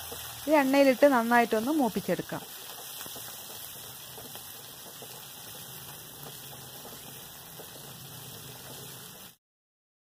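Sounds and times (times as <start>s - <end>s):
food sizzling in oil: 0.0s - 9.4s
spatula scraping: 2.5s - 9.4s.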